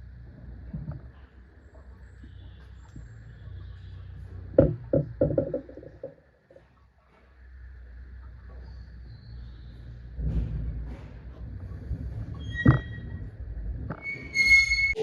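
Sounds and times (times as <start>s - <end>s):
low hum: 0.0s - 15.0s
sharp knocks and clanks: 4.5s - 7.3s, 10.1s - 13.2s.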